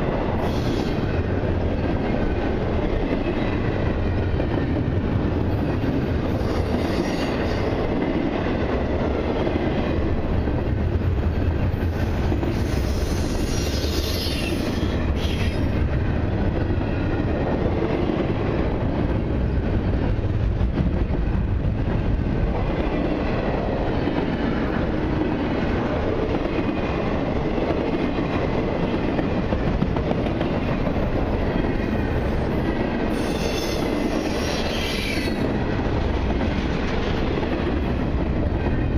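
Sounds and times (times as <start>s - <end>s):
train wheels rumbling on rail: 0.0s - 38.9s
high wheel squeal: 33.1s - 35.4s.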